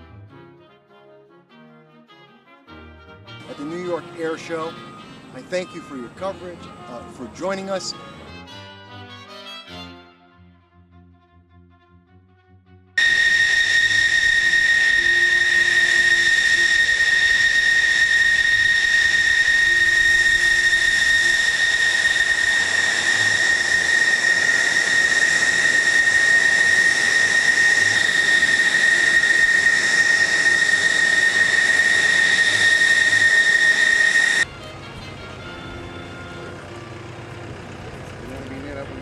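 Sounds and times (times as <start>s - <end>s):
jet turbine whine: 3.4s - 8.2s, 13.0s - 39.0s.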